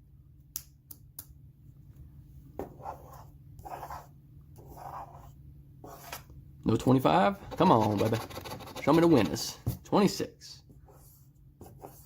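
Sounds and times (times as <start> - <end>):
scratch-off ticket being scraped: 7.4 - 9.5.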